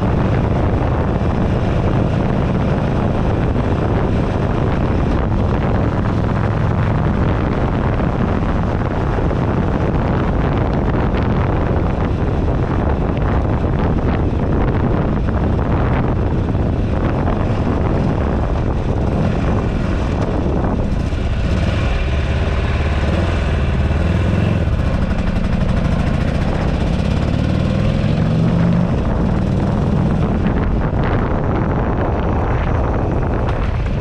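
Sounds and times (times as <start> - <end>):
motorcycle engine running: 0.0 - 34.0
wind buffeting microphone: 0.0 - 34.0.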